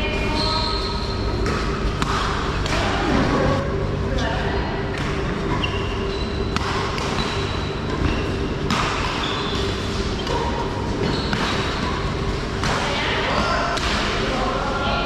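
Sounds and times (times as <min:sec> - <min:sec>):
busy hall background: 0:00.0 - 0:15.0
shoes squeaking on court floor: 0:00.2 - 0:01.8, 0:05.2 - 0:12.3.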